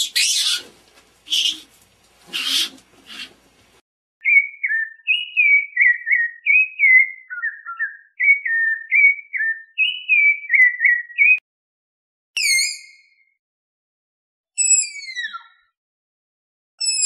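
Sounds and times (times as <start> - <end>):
bird whistling song: 1.3 - 1.6, 4.2 - 11.4, 12.4 - 13.3, 14.6 - 15.7, 16.8 - 17.0.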